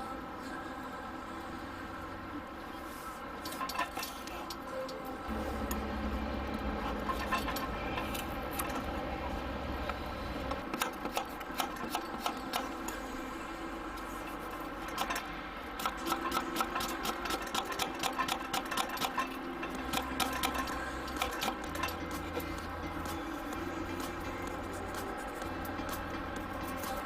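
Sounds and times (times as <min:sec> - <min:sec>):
cooking utensils clicking and tapping: 0:03.4 - 0:04.6, 0:06.8 - 0:09.0, 0:10.5 - 0:12.8, 0:14.3 - 0:27.0.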